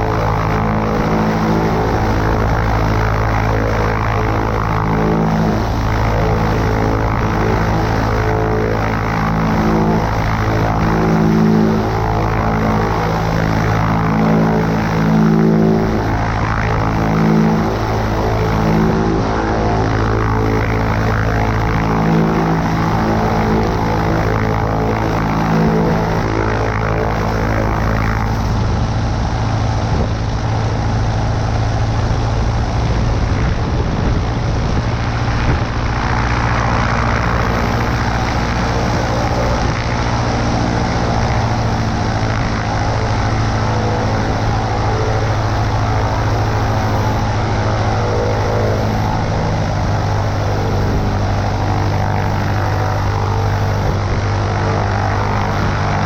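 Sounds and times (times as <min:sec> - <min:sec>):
propeller plane engine droning: 0:00.0 - 0:56.0.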